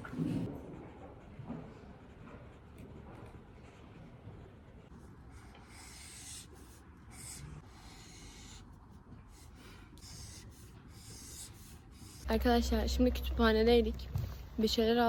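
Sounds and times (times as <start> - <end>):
pen scratching on paper: 4.8 - 13.2.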